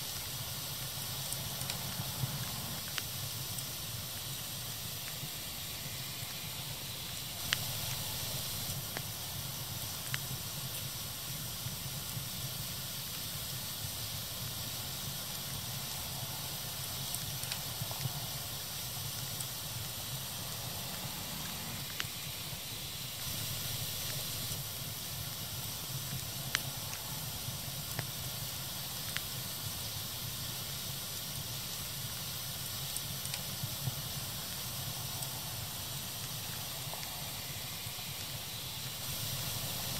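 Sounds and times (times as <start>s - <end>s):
fire crackling: 0.0s - 39.9s
sharp pops of fire: 7.2s - 13.8s.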